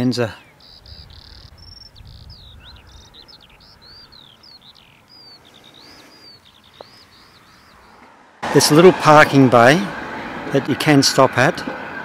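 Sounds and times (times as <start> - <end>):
songbird singing: 0.0 - 8.4
wind rumble on microphone: 0.6 - 4.4.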